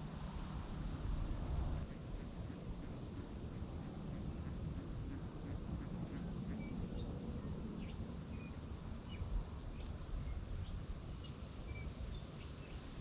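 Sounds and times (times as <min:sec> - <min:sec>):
small birds chirping: 0:07.8 - 0:13.0.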